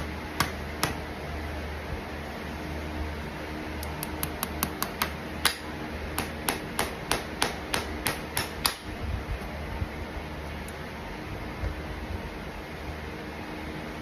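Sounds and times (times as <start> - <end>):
hammer tapping on horseshoe: 0.4 - 1.0, 4.2 - 8.9.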